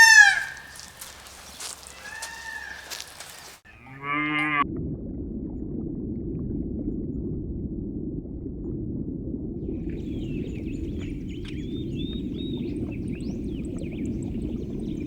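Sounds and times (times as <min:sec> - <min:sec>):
cow mooing: 0:03.7 - 0:04.6.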